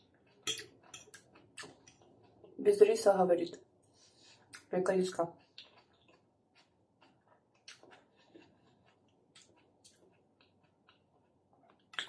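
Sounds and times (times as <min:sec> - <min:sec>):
faint chewing clicks: 0:05.4 - 0:12.0.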